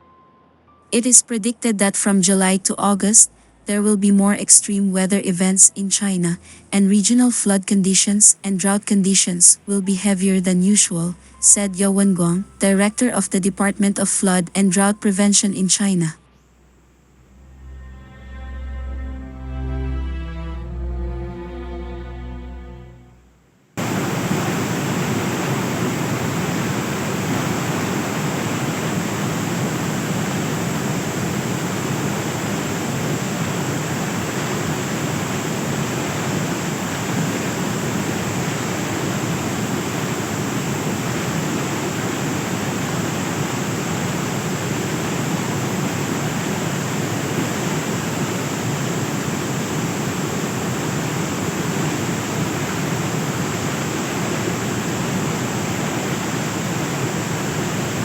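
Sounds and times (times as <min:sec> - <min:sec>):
floodwater rushing: 0:23.8 - 0:58.0.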